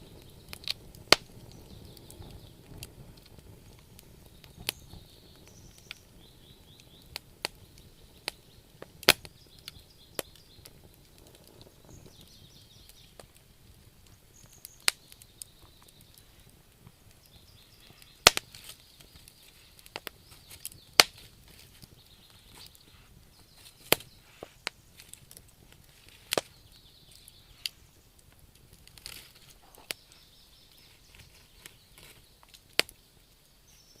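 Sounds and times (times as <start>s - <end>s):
campfire crackling: 0.0s - 34.0s
faint high chirping: 4.2s - 10.8s, 14.2s - 21.0s, 29.6s - 34.0s.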